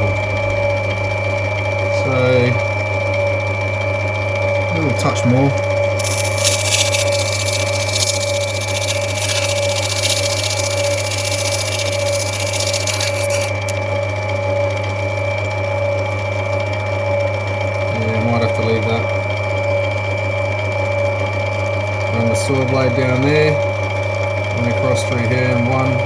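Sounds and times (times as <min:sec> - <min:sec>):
grinding wheel motor hum: 0:04.5 - 0:15.2
stone hissing on grinding wheel: 0:06.0 - 0:13.8.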